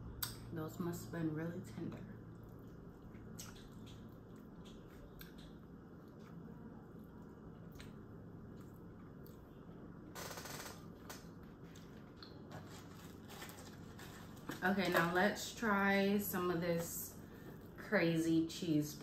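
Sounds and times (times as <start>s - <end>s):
chewing and mouth smacks: 2.2s - 9.9s.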